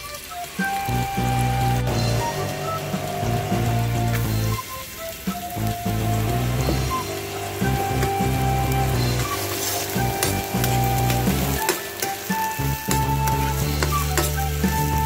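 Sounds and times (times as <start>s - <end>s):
onions sizzling in hot oil: 0.0s - 15.0s
metal spoon scraping a wok: 9.1s - 12.4s.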